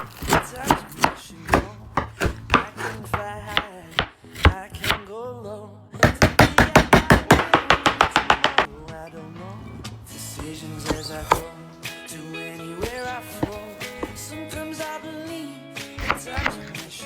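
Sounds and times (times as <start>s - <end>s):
knife chopping on cutting board: 0.0s - 5.1s, 6.0s - 8.7s, 10.4s - 11.5s, 12.8s - 15.0s, 16.0s - 17.0s.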